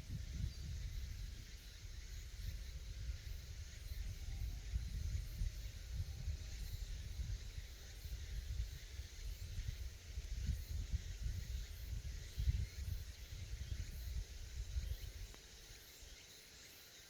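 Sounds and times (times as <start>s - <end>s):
wind buffeting microphone: 0.0s - 15.4s
cicadas droning: 0.0s - 17.0s.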